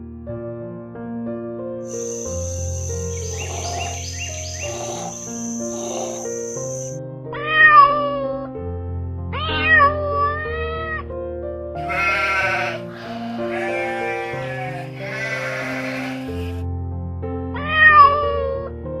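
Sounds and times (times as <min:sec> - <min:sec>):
background music with held notes: 0:00.0 - 0:19.0
drawn-out animal cries: 0:01.9 - 0:07.0, 0:11.8 - 0:16.6.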